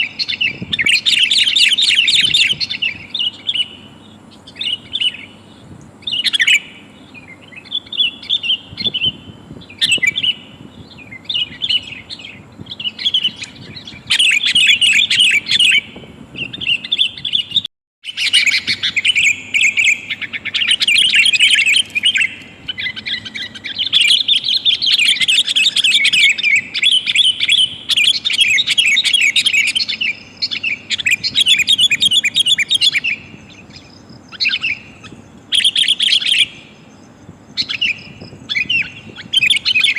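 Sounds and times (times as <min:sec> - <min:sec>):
bulbuls chattering calls: 0:00.0 - 0:39.9.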